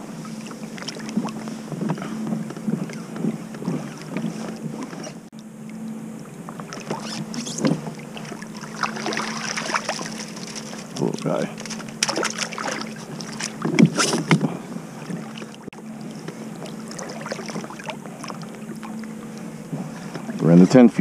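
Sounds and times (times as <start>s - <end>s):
low hum: 0.0s - 21.0s
water splashing and dripping: 6.5s - 14.0s, 15.0s - 19.5s.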